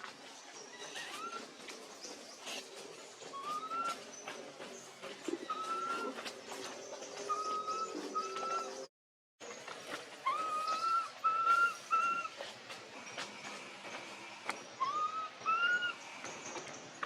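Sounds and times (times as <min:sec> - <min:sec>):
baby monkey coo calls: 0:10.2 - 0:12.3, 0:14.8 - 0:16.0.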